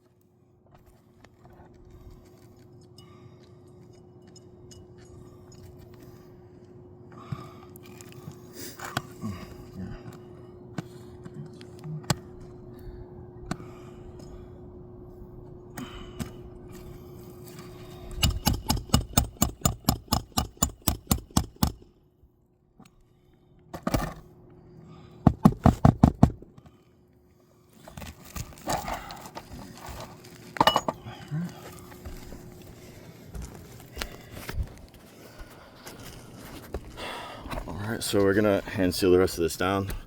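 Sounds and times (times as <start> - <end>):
hammer blows on shingle roof: 18.2 - 21.9, 25.2 - 26.4.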